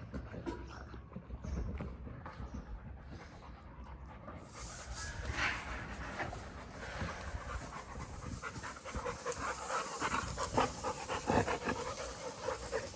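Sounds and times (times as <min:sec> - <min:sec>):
dog panting: 0:00.0 - 0:12.9.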